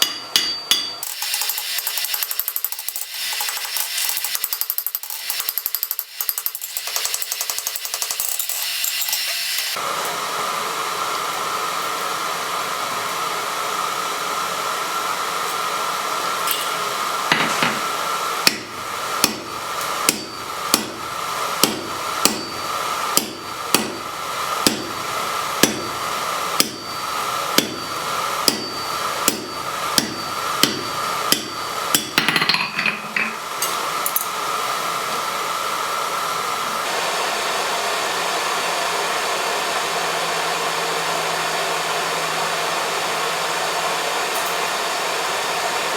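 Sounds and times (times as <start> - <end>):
hammer striking steel on anvil: 0.0 - 9.2, 16.5 - 25.0, 25.6 - 26.0, 26.6 - 34.3.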